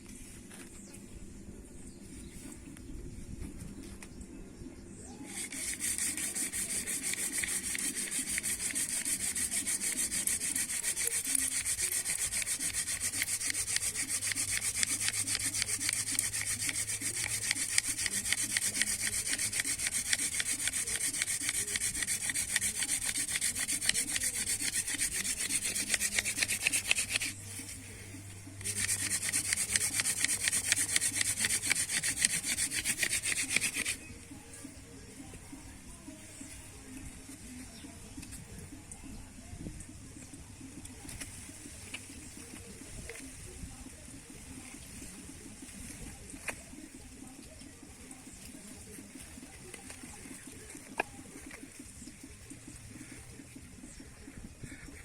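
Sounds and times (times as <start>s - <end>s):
wood rasping on wood: 5.3s - 34.1s.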